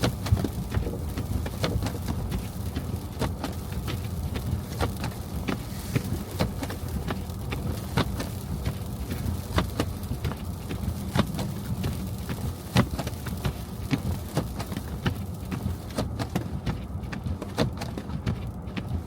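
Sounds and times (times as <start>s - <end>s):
car driving rumble: 0.0s - 19.0s.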